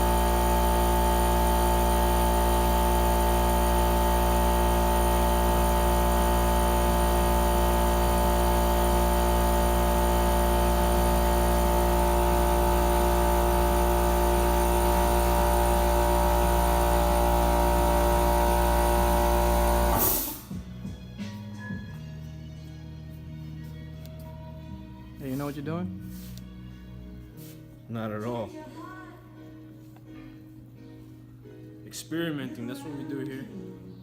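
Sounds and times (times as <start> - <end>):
electric motor whirring hum: 0.0 - 20.5.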